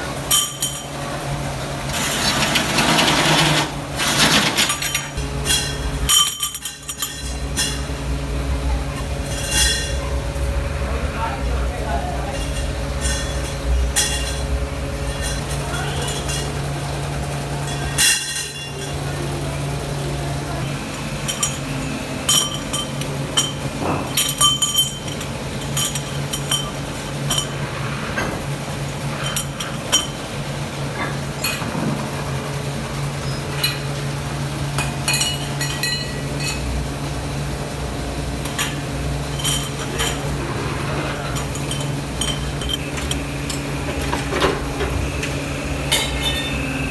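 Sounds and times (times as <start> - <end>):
machine hum: 0.0 - 24.2, 24.8 - 46.9
metal parts clinking: 2.0 - 7.9, 9.2 - 10.0, 12.3 - 16.6, 17.6 - 19.1, 22.3 - 27.6, 38.4 - 44.9.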